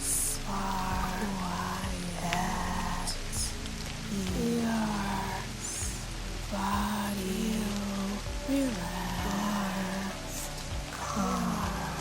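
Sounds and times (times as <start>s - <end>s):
calm ambient music: 0.0s - 12.0s
rain falling: 0.0s - 12.0s.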